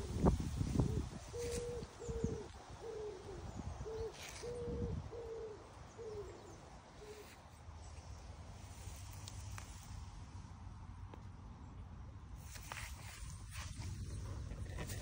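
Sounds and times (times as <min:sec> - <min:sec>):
bird hooting coos: 0:00.0 - 0:07.4.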